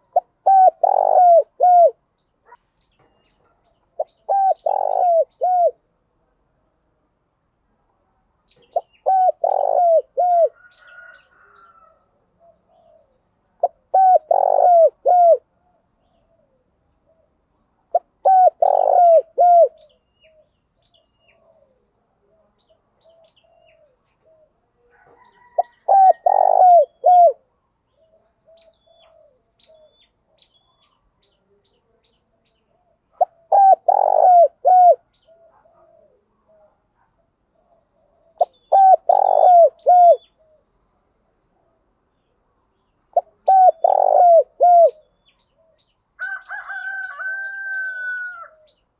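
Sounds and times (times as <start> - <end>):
dove cooing: 0.0 - 2.6, 3.4 - 5.9, 8.6 - 30.1, 32.7 - 40.6, 43.1 - 45.8.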